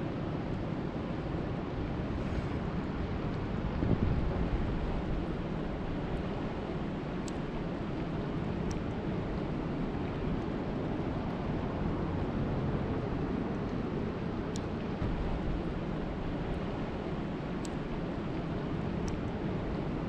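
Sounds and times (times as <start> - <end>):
rushing water and rain: 0.0 - 20.0
faint high ticks: 7.2 - 7.5, 17.6 - 19.4.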